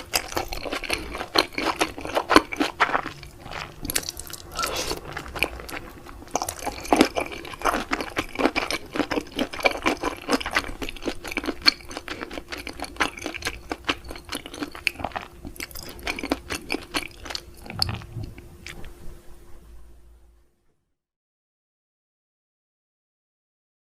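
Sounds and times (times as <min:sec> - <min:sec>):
wet chewing with crunches: 0:00.0 - 0:18.9.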